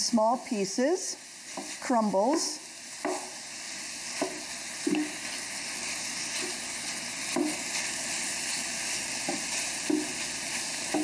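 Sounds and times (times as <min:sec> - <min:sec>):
sausage and onion sizzling in oil: 0:00.0 - 0:11.0
spatula scraping and tapping pan: 0:01.5 - 0:03.4, 0:04.1 - 0:05.4, 0:06.3 - 0:06.6, 0:07.3 - 0:08.0, 0:09.2 - 0:11.0.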